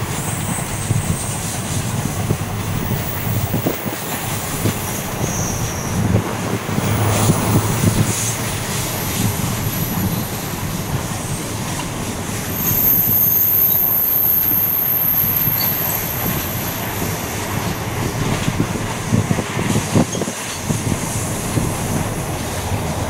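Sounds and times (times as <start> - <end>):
train wheels rumbling and clattering: 0.0 - 23.0
high thin wheel squeal: 2.9 - 10.5, 12.4 - 18.2.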